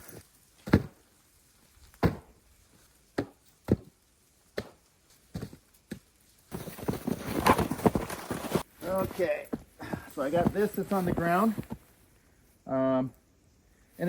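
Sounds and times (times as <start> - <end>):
footsteps crunching in snow: 4.5 - 11.9.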